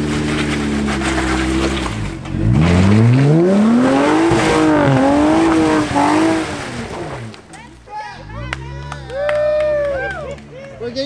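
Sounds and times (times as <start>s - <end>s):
engine revving: 0.0s - 7.6s.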